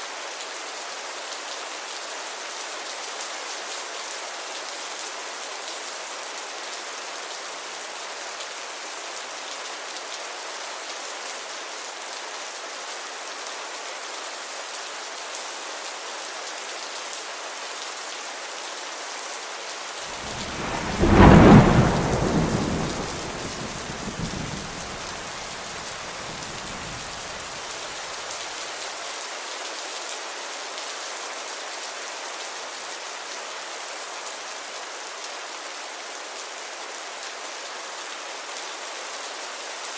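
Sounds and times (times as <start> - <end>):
steady rain falling: 0.0 - 39.9
thunder clap rumbling: 20.2 - 27.5.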